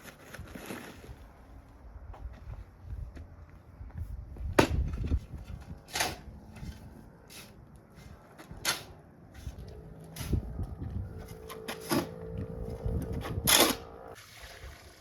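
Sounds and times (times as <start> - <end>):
low rumble: 9.4 - 14.2.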